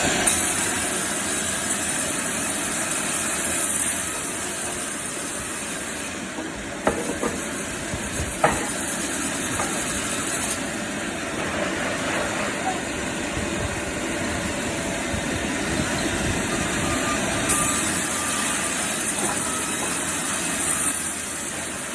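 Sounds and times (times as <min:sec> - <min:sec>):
bandsaw running: 0:16.8 - 0:21.9.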